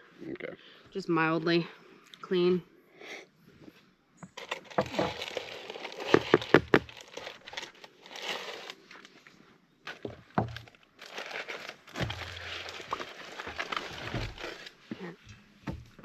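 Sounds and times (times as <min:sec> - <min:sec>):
aluminium foil crinkling: 0:04.4 - 0:14.9.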